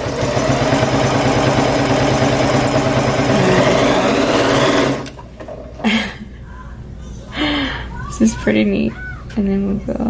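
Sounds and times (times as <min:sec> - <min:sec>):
sewing machine stitching: 0:00.0 - 0:05.2.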